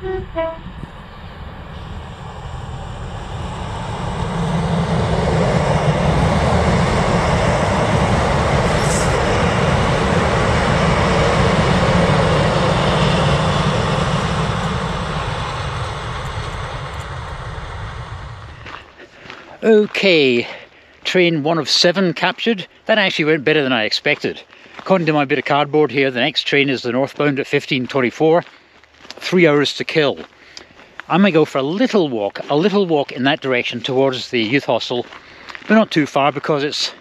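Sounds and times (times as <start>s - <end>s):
diesel train passing: 0.0s - 29.5s.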